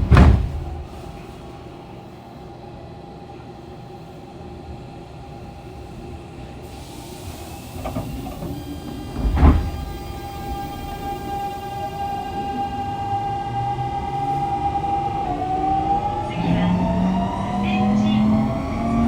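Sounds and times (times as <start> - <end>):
heavy clunks: 0.0 - 1.3, 9.1 - 10.0
train low hum: 0.0 - 19.0.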